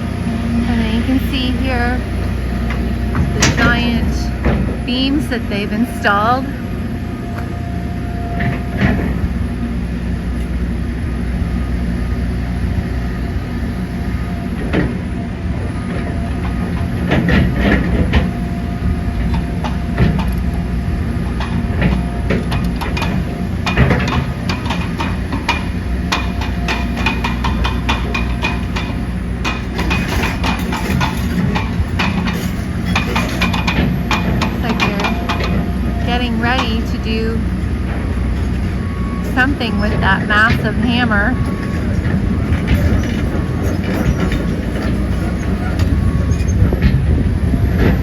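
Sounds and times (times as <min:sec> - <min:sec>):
heavy machinery rumbling: 0:00.0 - 0:48.0
metallic clanks and knocks: 0:02.6 - 0:05.3, 0:21.3 - 0:37.0, 0:37.6 - 0:48.0.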